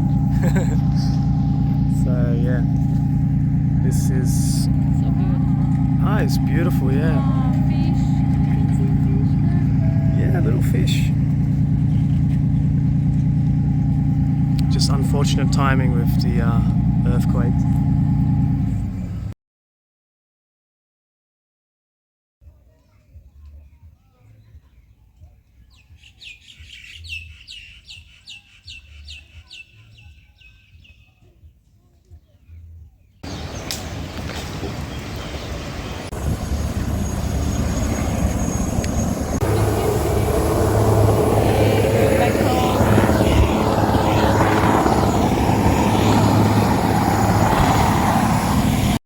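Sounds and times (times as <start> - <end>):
engine drone: 0.0 - 19.3, 33.2 - 49.0
bird chirping: 25.6 - 31.2, 32.5 - 48.4.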